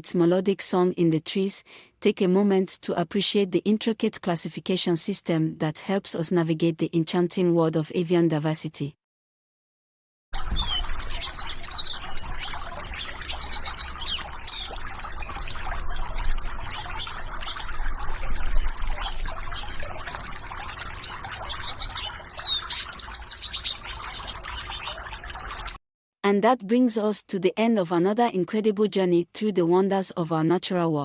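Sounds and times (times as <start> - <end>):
small birds chirping: 10.4 - 25.8
water trickling: 10.4 - 25.8.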